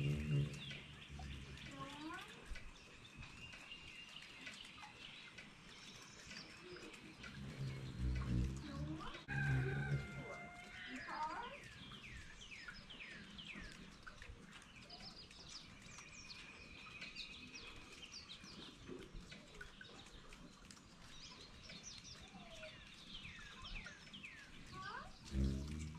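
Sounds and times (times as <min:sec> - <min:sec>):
birds chirping and whistling: 0:00.0 - 0:14.2
low background rumble: 0:07.1 - 0:10.4.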